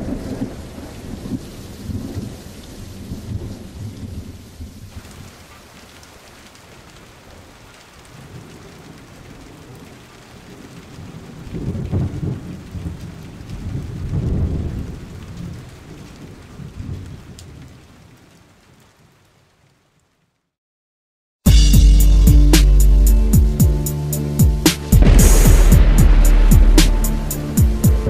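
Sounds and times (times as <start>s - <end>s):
low rolls of thunder: 0.0s - 5.4s, 8.2s - 17.8s, 25.0s - 28.0s
steady rain: 0.0s - 20.6s, 22.1s - 28.0s.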